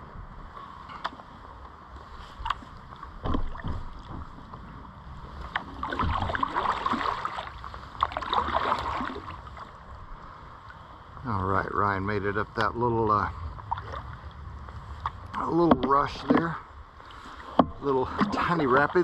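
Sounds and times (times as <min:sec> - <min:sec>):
paddle strokes splashing: 0:05.1 - 0:10.3, 0:13.6 - 0:19.0
water rushing over riffle: 0:05.8 - 0:09.3.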